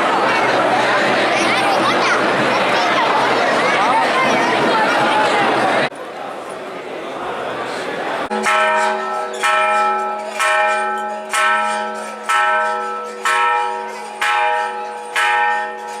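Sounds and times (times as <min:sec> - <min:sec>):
large temple bell ringing: 0:08.2 - 0:16.0.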